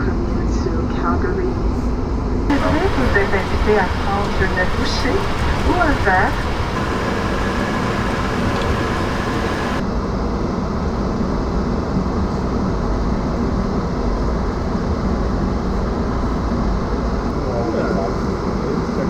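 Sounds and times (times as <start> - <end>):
aircraft cabin rumble: 2.5 - 9.8
high hiss: 2.5 - 9.8.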